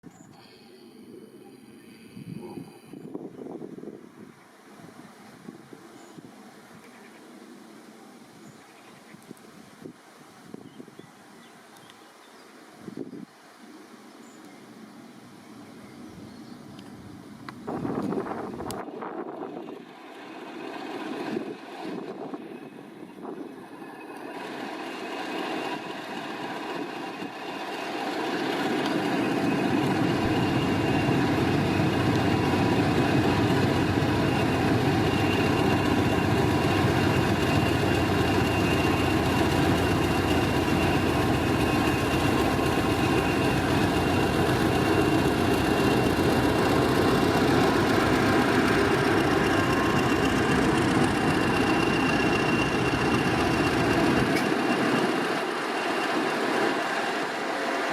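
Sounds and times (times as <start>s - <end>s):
diesel locomotive engine running: 17.2s - 57.9s
thin high whine: 28.6s - 57.9s.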